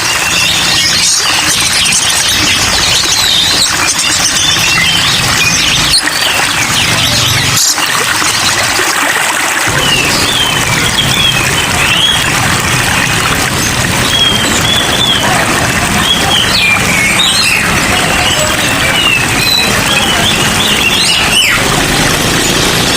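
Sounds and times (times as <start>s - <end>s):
songbirds chirping: 0.0s - 8.5s, 9.7s - 22.9s
steady rain: 9.7s - 22.9s.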